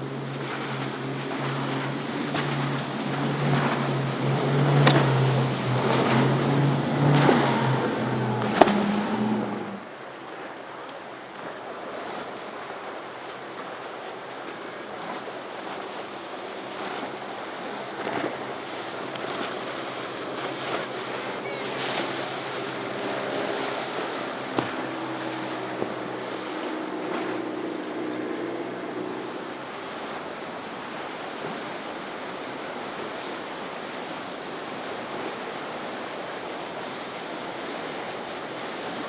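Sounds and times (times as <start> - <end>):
surf breaking: 0.0 - 9.9, 15.2 - 30.6
boat engines droning: 0.0 - 10.0, 13.7 - 39.0.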